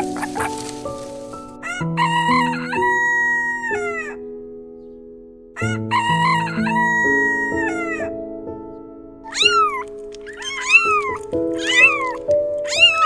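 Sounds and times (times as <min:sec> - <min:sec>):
background music with low notes: 0:00.0 - 0:13.0
rooster crowing: 0:01.6 - 0:04.0, 0:05.6 - 0:08.0.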